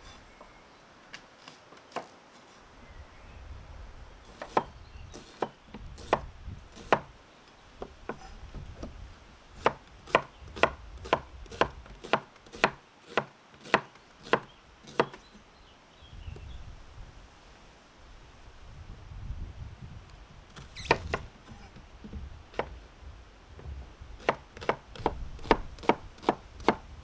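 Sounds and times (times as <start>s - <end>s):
knife chopping on cutting board: 9.6s - 15.1s.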